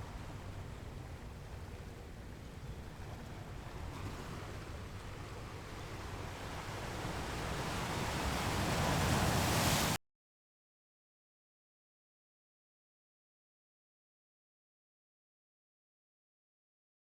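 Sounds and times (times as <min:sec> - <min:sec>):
sea waves washing in: 0:05.5 - 0:10.0.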